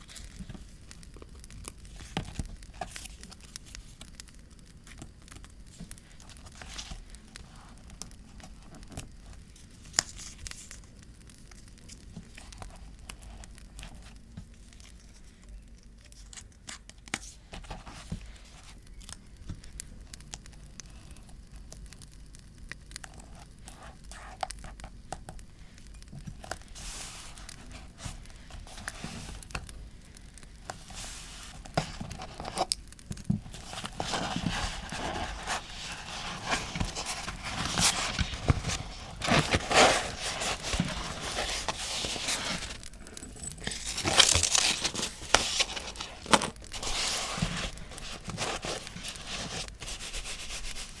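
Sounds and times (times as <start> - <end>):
paper rustling and tearing: 33.4 - 51.0.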